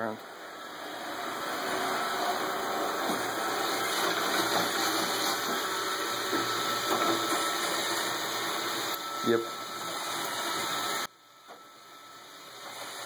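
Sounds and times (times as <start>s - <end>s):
robot vacuum whirring: 0.3s - 13.0s.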